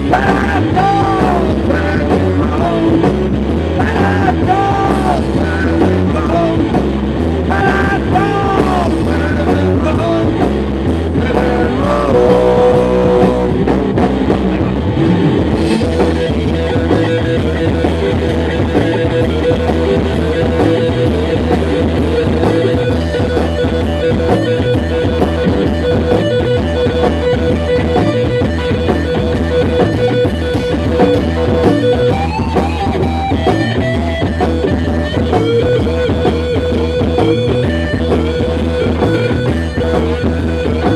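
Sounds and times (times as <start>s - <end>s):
bass guitar: 0.0s - 40.9s
drum kit beat: 0.0s - 40.9s
electric guitar: 0.0s - 40.9s
sustained guitar note: 11.0s - 19.4s.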